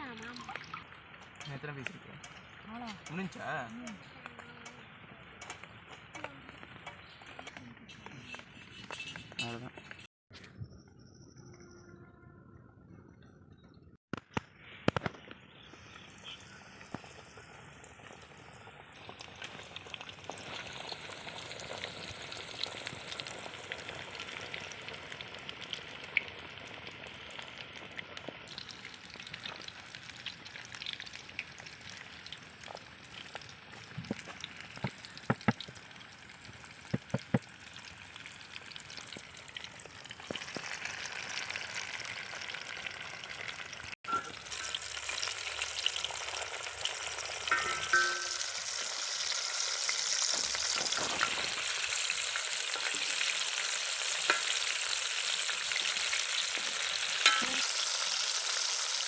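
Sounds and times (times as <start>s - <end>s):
chicken deep-frying in oil: 0.0s - 10.1s, 14.1s - 59.0s
utensil knocking against pan: 47.5s - 48.5s.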